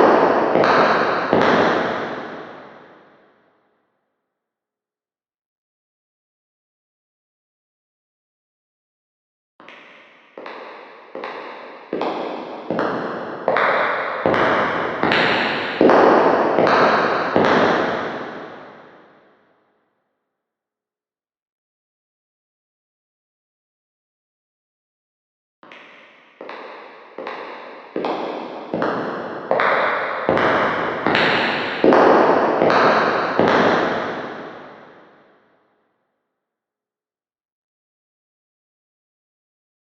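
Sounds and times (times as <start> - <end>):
echoing footsteps: 0.0 - 3.0, 10.3 - 19.0, 26.4 - 35.2.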